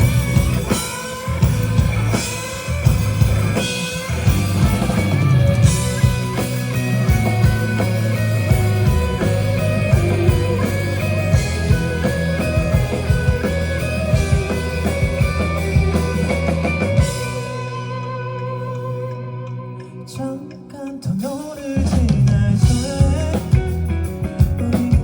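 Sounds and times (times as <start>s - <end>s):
drums hitting: 0.0s - 17.8s, 21.8s - 25.0s
live band instrumental: 0.0s - 25.0s.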